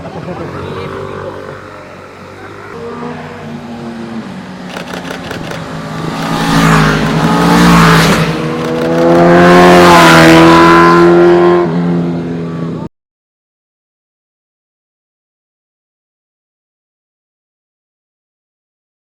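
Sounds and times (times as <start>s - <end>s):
motorbikes passing by: 0.0s - 12.7s.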